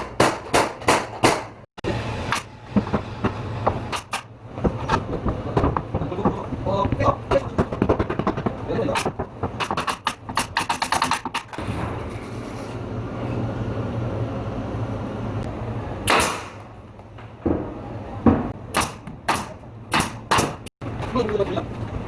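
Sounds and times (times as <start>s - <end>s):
sharp knocks: 2.3s - 11.6s
heavy knocks: 2.7s - 11.6s.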